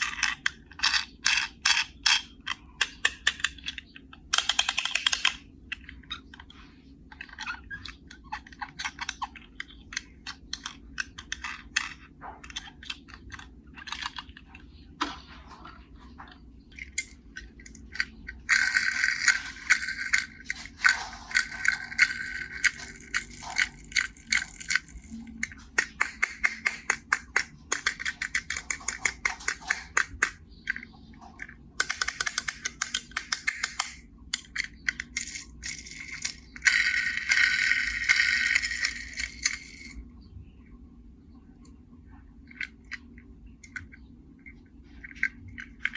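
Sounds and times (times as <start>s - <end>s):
toy cars clicking and clattering: 0.0s - 14.6s, 16.7s - 40.0s, 42.5s - 45.9s
rapid rattling: 16.8s - 40.0s.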